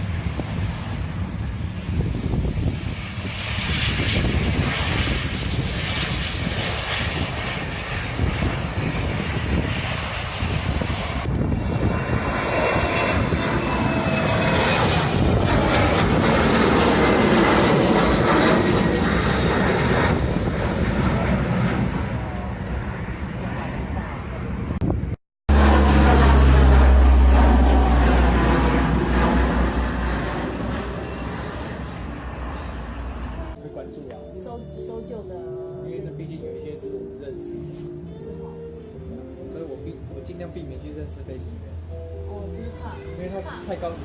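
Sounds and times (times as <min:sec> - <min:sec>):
aeroplane engines passing: 0:00.0 - 0:44.0
high engine whine falling: 0:24.8 - 0:33.7.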